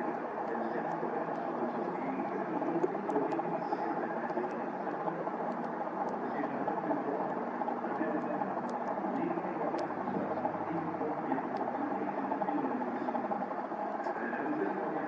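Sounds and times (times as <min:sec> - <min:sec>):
aircraft engine rumbling: 0:00.0 - 0:15.0.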